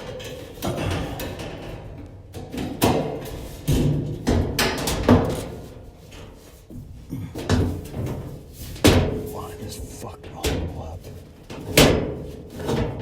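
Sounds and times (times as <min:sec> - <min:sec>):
knocks and clunks of dryer parts: 0:00.0 - 0:05.8.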